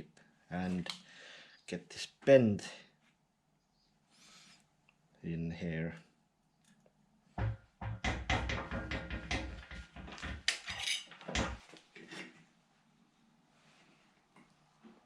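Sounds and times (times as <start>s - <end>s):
hammer knocking on steel sheet: 7.4s - 10.1s.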